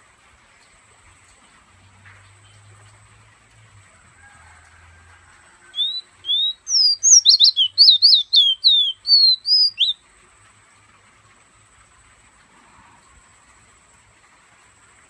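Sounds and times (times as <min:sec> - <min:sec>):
bird singing whistled notes: 0:05.8 - 0:10.0.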